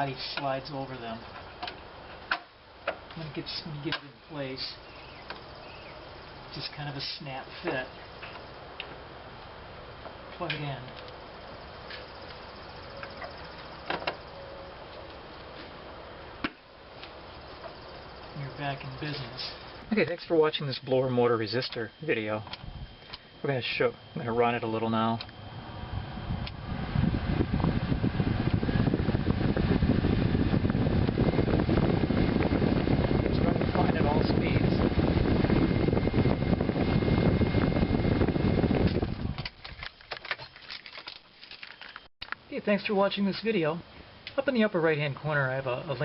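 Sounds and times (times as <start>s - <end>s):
steady background hiss: 0.0s - 29.2s, 40.0s - 46.0s
blower fan rushing air: 0.0s - 41.0s.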